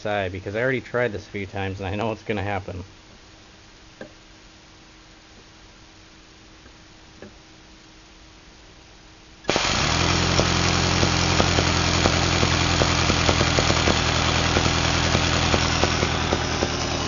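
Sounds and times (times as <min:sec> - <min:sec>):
air grinder hissing and humming: 0:09.5 - 0:17.0.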